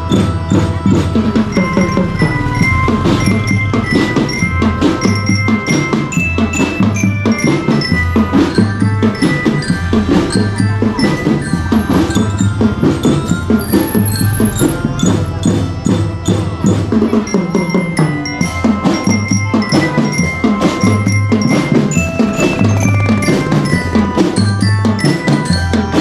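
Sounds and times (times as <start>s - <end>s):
bell lyres ringing melody: 0.0s - 26.0s
snare and bass drums: 18.6s - 26.0s.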